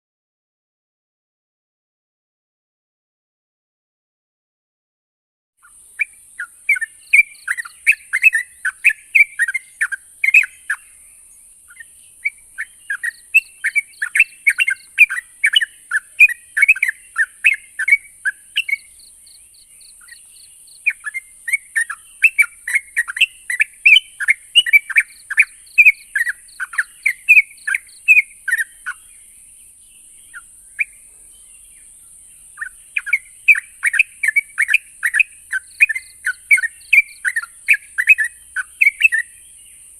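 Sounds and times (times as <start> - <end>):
steady high hiss: 5.6 - 36.0
bird singing bubbling chirps: 5.6 - 39.9.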